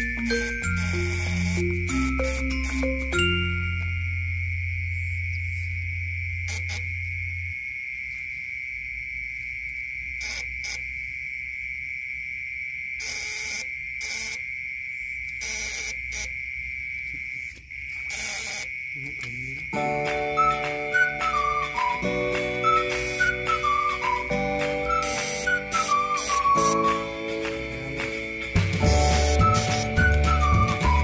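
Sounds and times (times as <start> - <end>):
night insects chirring: 0.0 - 31.0
low hum: 2.8 - 10.2.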